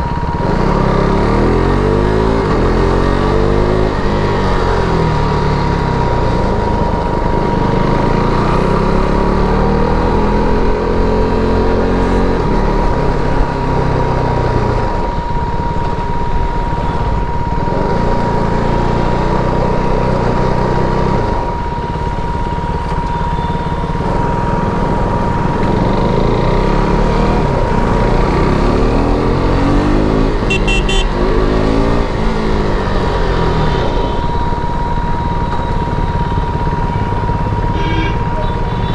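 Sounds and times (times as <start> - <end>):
motorcycle engine revving: 0.2 - 14.6, 24.0 - 33.9.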